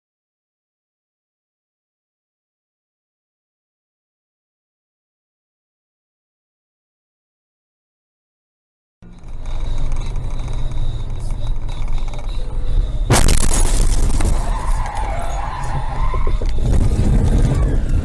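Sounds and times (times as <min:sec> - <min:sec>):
car road and engine rumble: 0:09.0 - 0:18.0
wavering squeal: 0:09.1 - 0:18.0
loud crash with crunching: 0:13.1 - 0:14.8.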